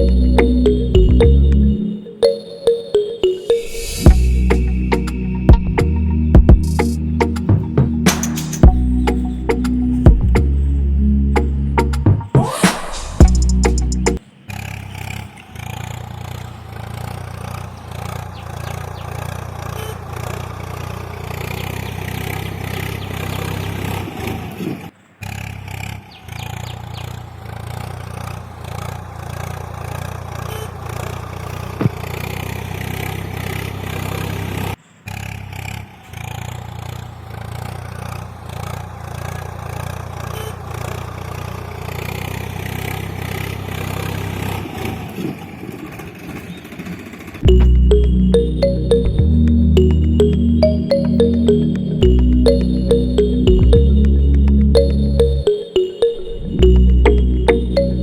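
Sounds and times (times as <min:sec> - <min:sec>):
engine running rough: 0:00.0 - 0:01.8, 0:04.1 - 0:24.9, 0:26.0 - 0:55.4.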